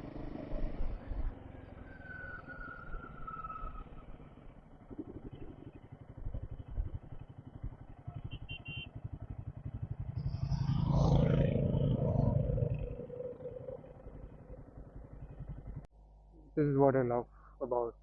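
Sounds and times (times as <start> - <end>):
louder vehicle sound: 0.0 - 15.9
motorcycle engine idling: 3.0 - 15.9.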